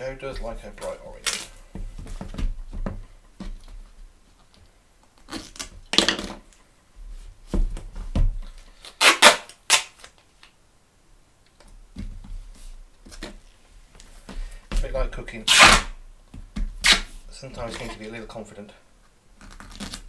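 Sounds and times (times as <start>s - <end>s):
crinkly tape handling: 0.2s - 1.6s
tape ripping off roll: 0.8s - 1.6s, 5.2s - 6.6s, 8.5s - 10.5s, 15.4s - 16.0s, 16.8s - 17.9s, 19.4s - 20.0s.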